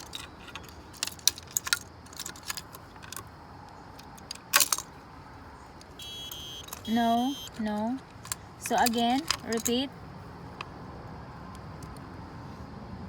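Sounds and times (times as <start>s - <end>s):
hard tags jangling and clicking: 0.0s - 5.1s, 5.8s - 9.9s.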